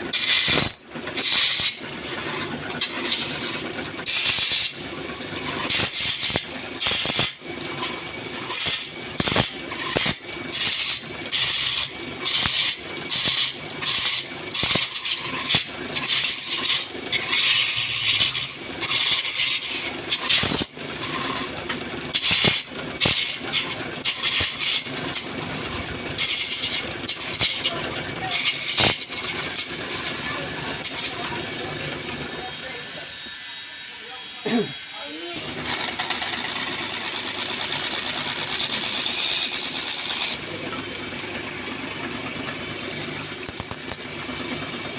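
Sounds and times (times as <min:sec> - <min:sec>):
high-pitched tool on spinning wood: 0:00.0 - 0:44.9
lathe running: 0:00.0 - 0:44.9.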